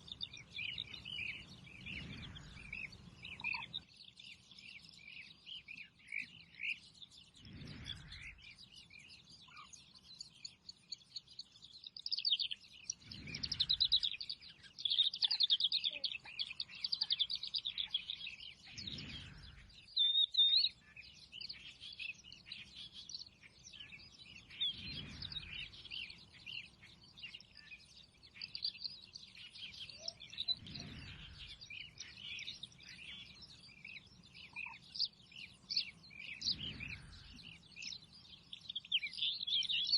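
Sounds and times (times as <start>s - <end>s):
small birds chirping: 0.0s - 39.9s
low whoosh: 7.4s - 8.4s, 18.7s - 19.8s, 24.6s - 26.1s, 36.4s - 37.5s.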